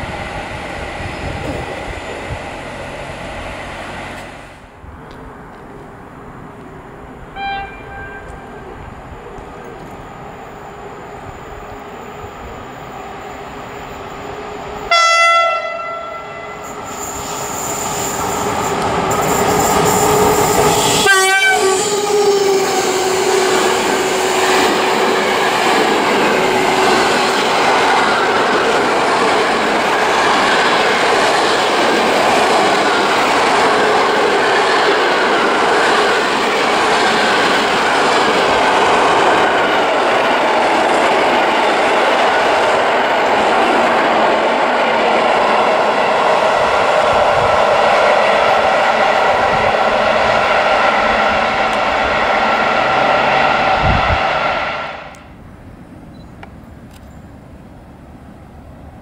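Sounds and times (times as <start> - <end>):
train wheels rumbling on rail: 0.0 - 55.6
electric train passing: 0.0 - 59.0
locomotive horn blasts: 7.4 - 8.6, 14.9 - 16.7, 21.0 - 24.3.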